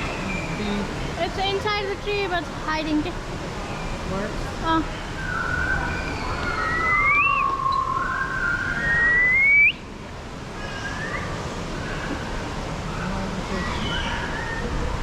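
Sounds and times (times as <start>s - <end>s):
sliding whistled notes: 5.2s - 9.9s.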